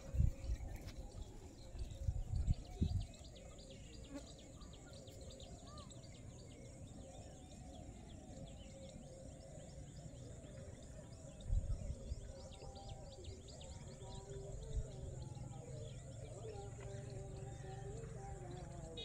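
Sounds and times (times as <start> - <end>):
low rumble on microphone: 0.0 - 3.9, 6.6 - 18.9
small birds chirping: 0.0 - 19.0.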